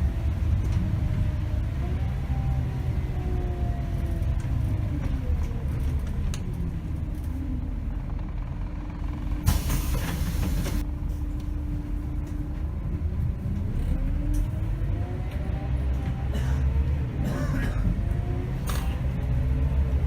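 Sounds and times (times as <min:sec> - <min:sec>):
bus drivetrain whine: 0:00.0 - 0:20.0
air brake hiss: 0:09.4 - 0:10.8.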